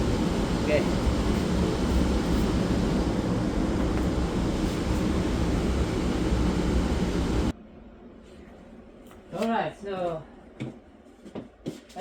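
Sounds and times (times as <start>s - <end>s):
loud rumbling and rushing noise: 0.0s - 7.5s.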